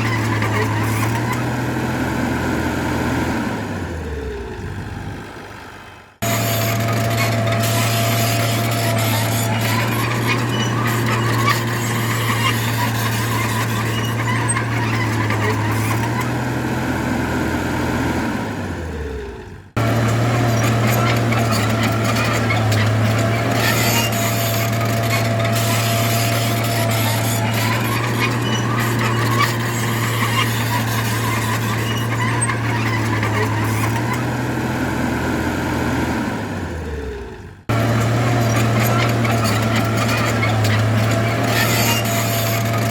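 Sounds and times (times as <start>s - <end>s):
steel tracks squealing: 0.0s - 1.4s, 6.2s - 16.4s, 19.8s - 34.4s, 37.7s - 42.9s
tracks and dirt clattering: 0.0s - 1.6s, 6.2s - 16.6s, 19.8s - 34.5s, 37.7s - 42.9s
bulldozer diesel engine droning: 0.0s - 42.9s.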